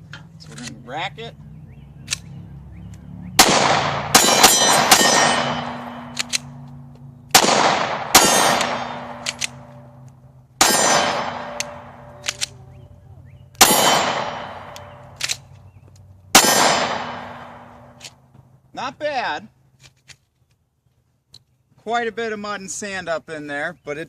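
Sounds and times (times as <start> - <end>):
small sharp clicks: 2.0 - 2.3, 6.1 - 7.1, 9.2 - 10.2, 11.5 - 12.6, 14.7 - 16.1
pistol shots echoing: 3.4 - 6.5, 7.3 - 10.0, 10.6 - 12.6, 13.6 - 15.2, 16.3 - 18.0.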